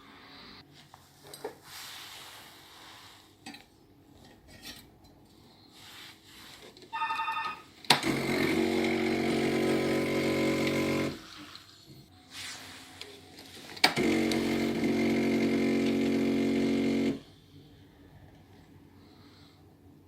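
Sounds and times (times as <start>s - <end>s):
short beep: 6.9s - 7.6s
espresso machine pump buzzing: 8.0s - 11.2s, 13.9s - 17.2s.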